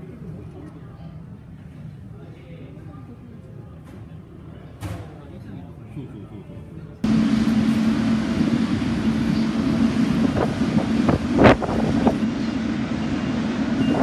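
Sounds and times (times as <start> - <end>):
low engine hum: 7.0 - 14.0
wind buffeting microphone: 7.1 - 14.0.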